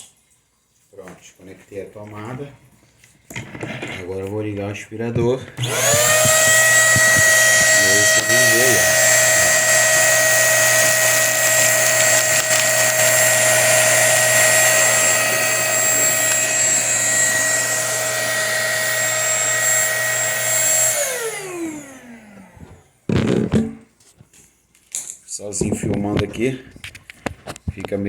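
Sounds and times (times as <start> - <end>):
vacuum cleaner motor whining: 5.5 - 23.8.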